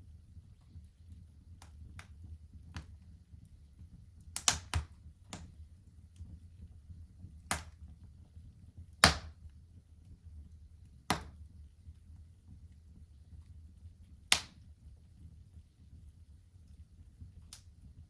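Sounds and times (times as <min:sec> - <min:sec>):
low rumble of burning fire: 0:00.0 - 0:18.0
wood fire crackling: 0:00.0 - 0:18.0
sharp pops and snaps of fire: 0:00.4 - 0:18.0.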